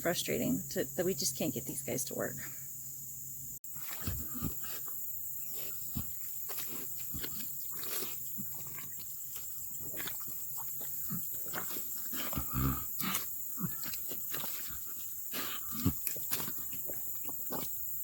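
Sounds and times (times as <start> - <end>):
high-pitched insect chorus: 0.0 - 18.0
pigs grunting and snuffling: 3.8 - 18.0.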